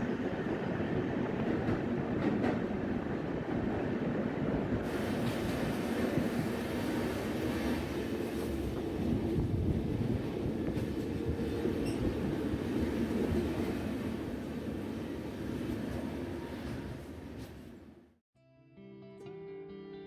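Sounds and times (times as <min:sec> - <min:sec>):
train wheels rumbling on rails: 0:00.0 - 0:18.1.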